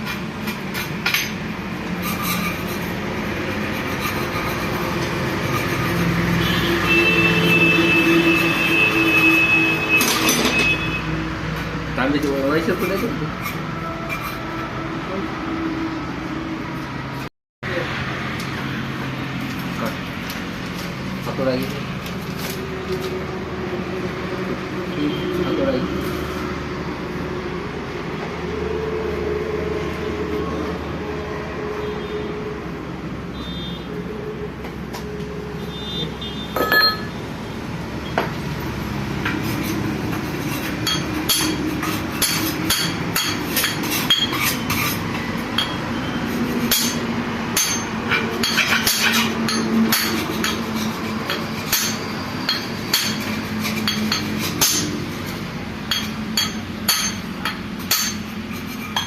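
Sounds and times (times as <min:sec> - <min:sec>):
hammer striking metal: 0:36.6 - 0:37.2, 0:40.8 - 0:44.5, 0:46.7 - 0:50.7, 0:51.3 - 0:55.0, 0:55.9 - 0:58.3.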